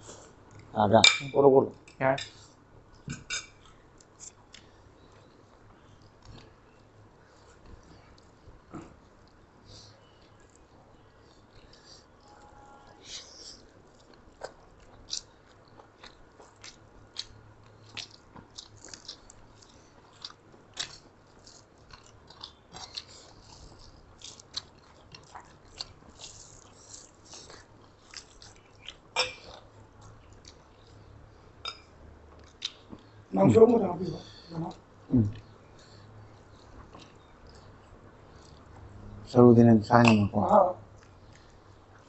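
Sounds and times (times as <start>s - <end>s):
chewing and mouth smacking: 13.4s - 33.2s, 34.7s - 39.1s, 40.9s - 42.0s.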